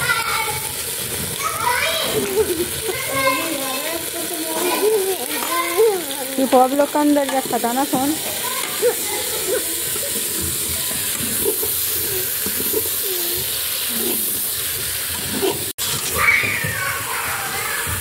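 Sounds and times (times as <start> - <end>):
slices frying in oil: 0.0 - 18.0
ladle stirring: 2.2 - 16.2.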